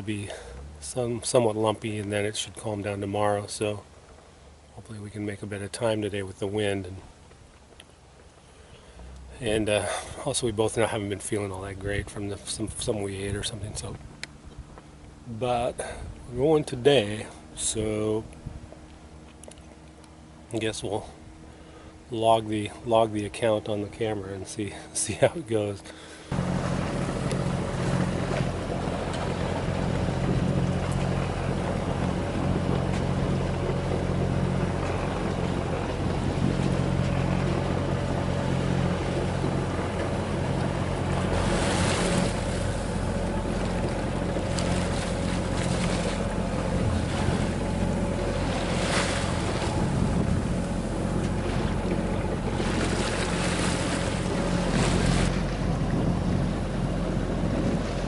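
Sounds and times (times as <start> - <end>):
boat engine running: 0.0 - 58.0
waves washing past hull: 0.0 - 58.0
wind on microphone: 26.3 - 58.0.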